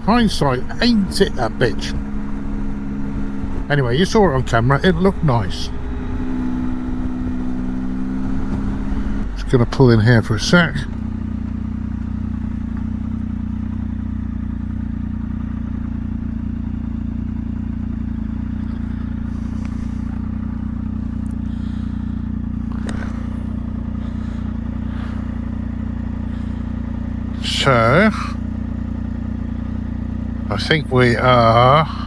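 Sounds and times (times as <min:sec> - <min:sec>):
motorcycle engine idling: 0:00.0 - 0:32.0
faint rustles: 0:18.5 - 0:27.4.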